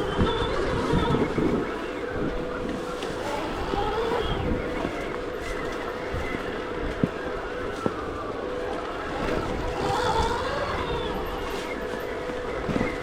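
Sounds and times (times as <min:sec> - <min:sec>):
electric motor whine: 0:00.0 - 0:13.0
wind noise: 0:00.0 - 0:13.0.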